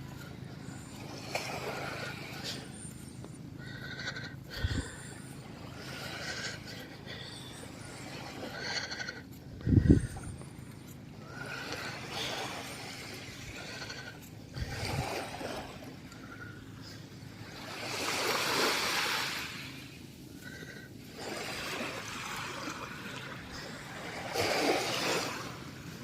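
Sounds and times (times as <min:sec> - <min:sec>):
small waves washing onto beach: 0:17.3 - 0:20.0, 0:21.0 - 0:26.0.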